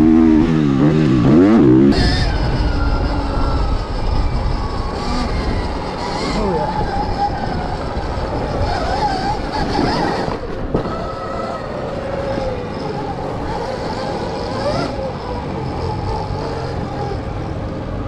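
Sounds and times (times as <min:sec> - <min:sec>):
dirt bike engine revving: 0:00.0 - 0:17.8
wind on the microphone: 0:01.9 - 0:15.1.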